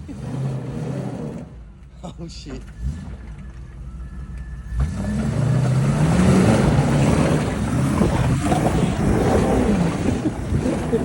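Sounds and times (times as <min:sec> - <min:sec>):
car engine revving hard: 0:04.7 - 0:11.0.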